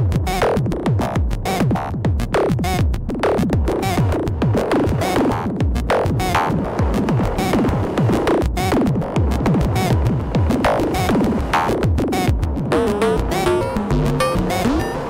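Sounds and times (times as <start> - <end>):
low pulsing synth rhythm: 0.0 - 15.0
falling synth notes: 10.6 - 15.0.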